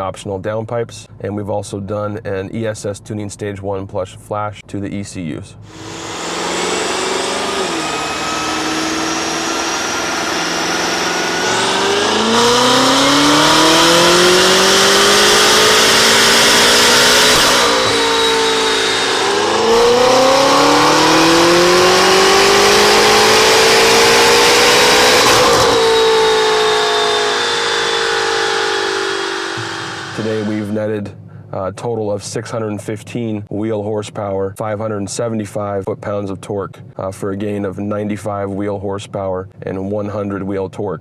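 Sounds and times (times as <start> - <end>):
car exhaust accelerating hard: 5.7 - 30.9.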